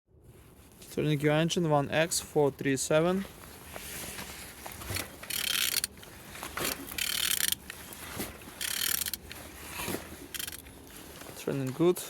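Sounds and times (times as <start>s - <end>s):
engine shaft whirring and ratcheting: 4.9s - 11.3s.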